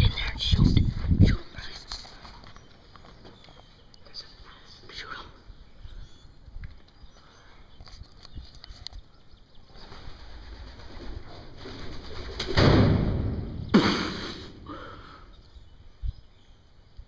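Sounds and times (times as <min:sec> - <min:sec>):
pigeons' wings flapping: 0:09.8 - 0:12.9.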